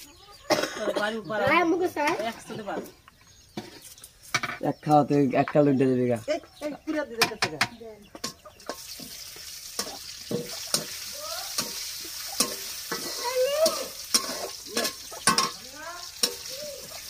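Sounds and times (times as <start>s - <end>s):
utensil scraping and clinking on pot: 7.2s - 17.0s
food sizzling in a pan: 8.2s - 17.0s.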